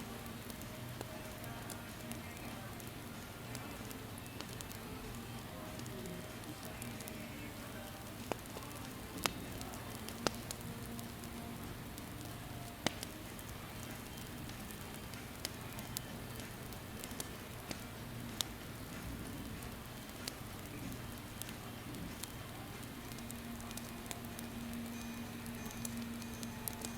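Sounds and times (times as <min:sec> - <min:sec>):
campfire crackling and popping: 0:00.0 - 0:26.9.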